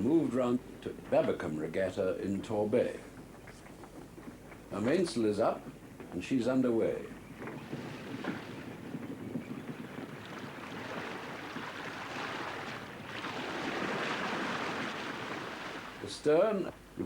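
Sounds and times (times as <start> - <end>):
sea wash against a yacht: 0.0 - 17.0
rushing wind: 3.0 - 17.0.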